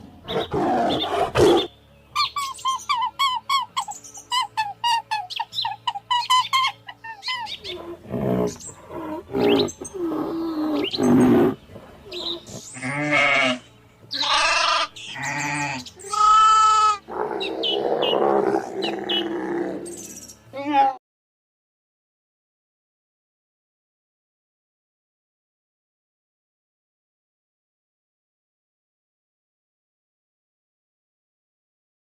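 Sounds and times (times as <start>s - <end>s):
goats bleating: 12.8s - 17.0s.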